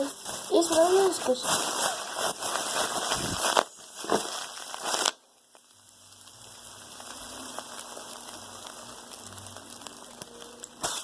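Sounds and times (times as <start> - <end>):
plastic bag crinkling: 0.0 - 5.3
faint crackling: 0.0 - 11.0.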